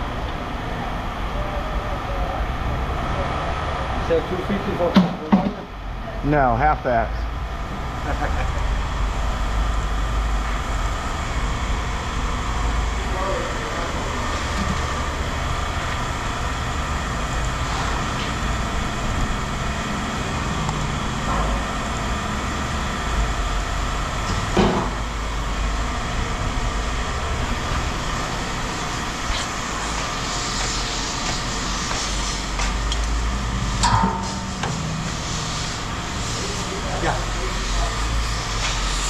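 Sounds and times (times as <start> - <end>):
large vehicle engine running: 7.2 - 38.8
sharp knock: 33.8 - 34.8.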